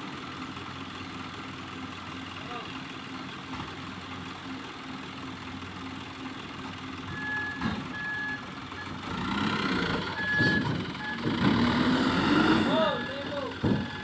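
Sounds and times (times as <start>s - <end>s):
truck engine running: 0.0s - 14.0s
reversing alarm beeping: 7.1s - 8.9s, 10.1s - 11.3s, 12.6s - 14.0s.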